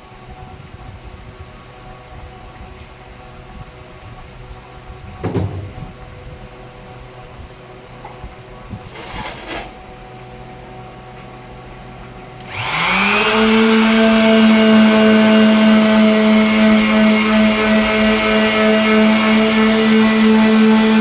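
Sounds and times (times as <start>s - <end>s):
electric sander running: 12.4s - 21.0s.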